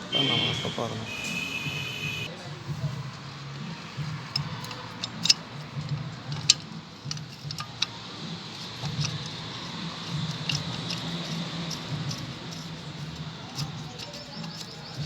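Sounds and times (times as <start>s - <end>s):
metallic clinks of hand tools: 4.3s - 15.0s.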